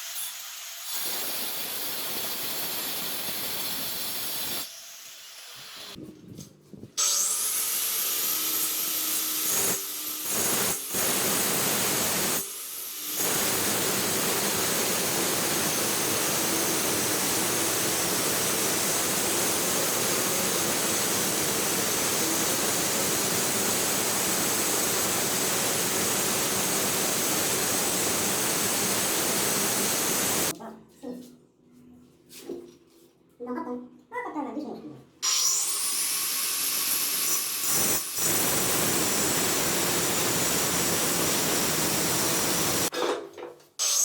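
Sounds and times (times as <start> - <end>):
power tool whining while cutting: 35.2 - 42.9.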